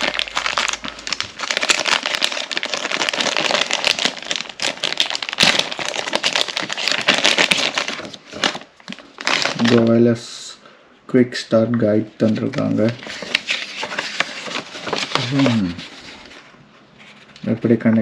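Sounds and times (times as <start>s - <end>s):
packaging crinkling: 0.0s - 10.0s, 12.2s - 16.5s.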